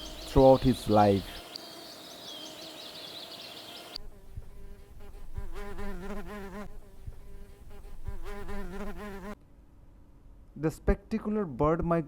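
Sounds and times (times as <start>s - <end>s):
bird chirps: 0.0s - 4.0s
flying insect buzzing: 0.0s - 9.4s
outdoor noise: 0.0s - 11.5s.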